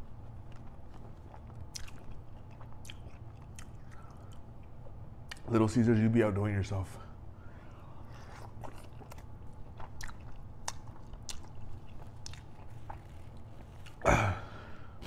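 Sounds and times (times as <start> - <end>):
wet chewing clicks and smacks: 0.2 - 5.5, 8.2 - 14.0.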